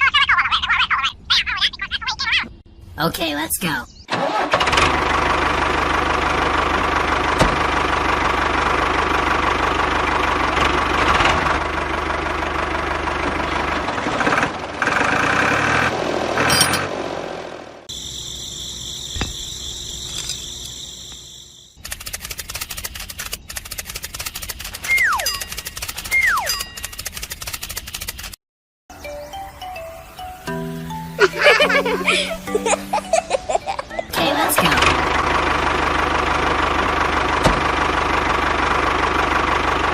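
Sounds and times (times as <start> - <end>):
fast rattle: 21.8 - 28.4.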